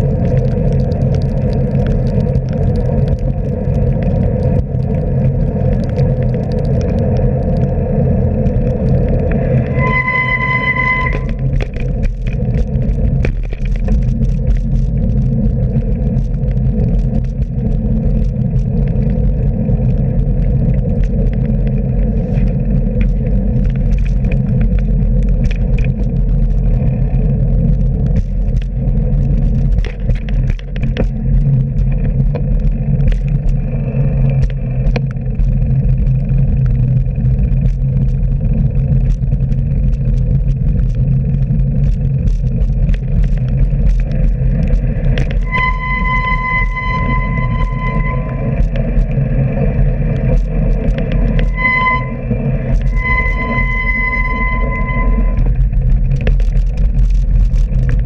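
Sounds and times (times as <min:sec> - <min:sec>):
road and wind noise: 0:00.0 - 0:58.0
small knocks and rattles: 0:11.1 - 0:19.2, 0:28.0 - 0:33.6.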